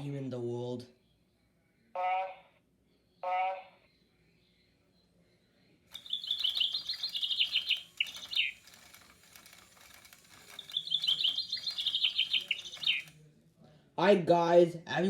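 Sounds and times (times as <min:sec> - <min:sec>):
parrot chirping: 0:05.9 - 0:13.1.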